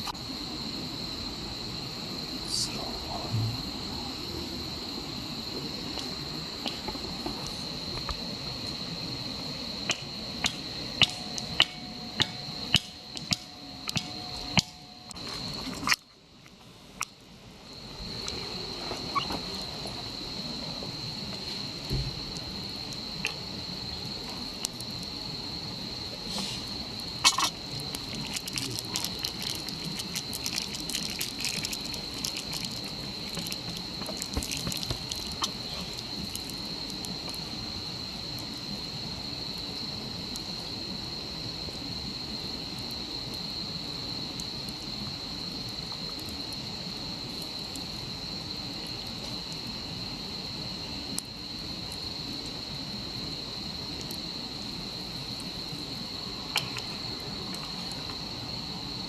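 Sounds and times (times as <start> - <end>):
low rushing hiss: 0.0 - 15.8, 16.6 - 30.9
insects trilling: 0.0 - 59.0
small clicks and crackles: 27.2 - 37.4.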